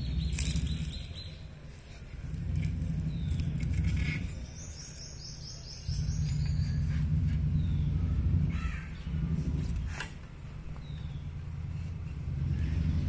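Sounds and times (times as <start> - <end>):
small bird chirping: 0.0 - 10.0
low rumbling noise: 0.0 - 13.0.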